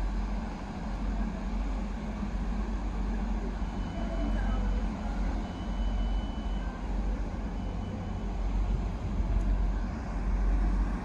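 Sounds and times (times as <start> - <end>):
train rumbling by: 0.0 - 11.0.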